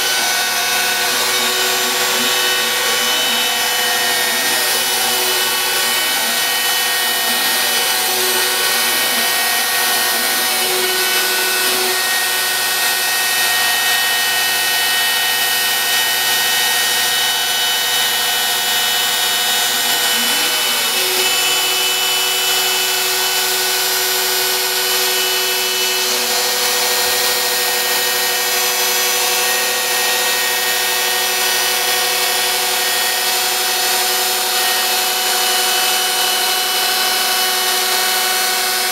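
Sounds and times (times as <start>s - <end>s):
stepper motors whining: 0.0s - 14.1s, 19.4s - 30.9s
router spindle cutting: 0.0s - 38.9s.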